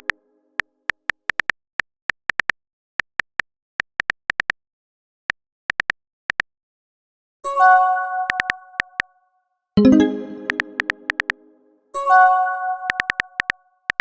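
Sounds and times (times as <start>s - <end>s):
phone keyboard typing clicks: 8.3s - 9.1s, 10.0s - 11.4s, 12.9s - 14.0s
text message chime: 9.8s - 11.5s.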